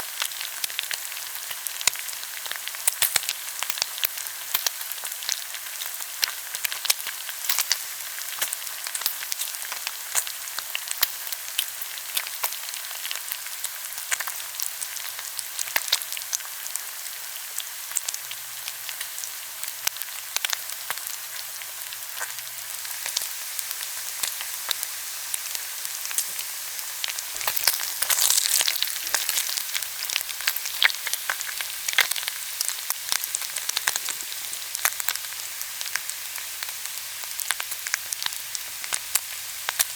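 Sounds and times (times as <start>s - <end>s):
pork sizzling on grill: 0.0s - 39.9s
fat popping and crackling: 27.1s - 32.2s.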